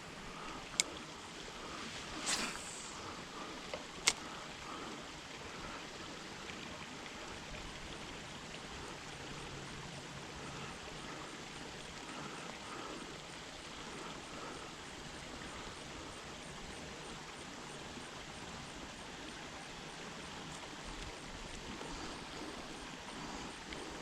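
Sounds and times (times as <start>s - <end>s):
outdoor background hiss: 0.0s - 24.0s
sharp clicks: 3.7s - 4.3s.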